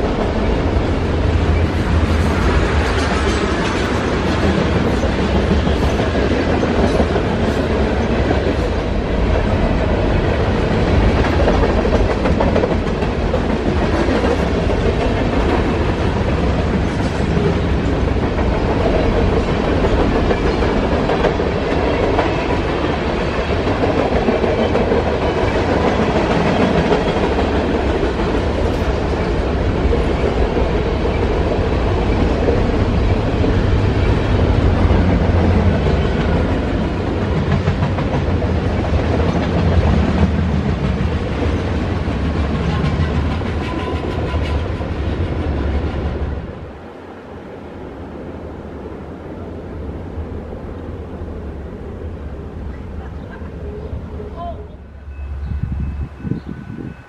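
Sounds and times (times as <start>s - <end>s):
wheels clacking over rail joints: 0.0s - 9.4s
freight train wheels rumbling: 0.0s - 57.0s.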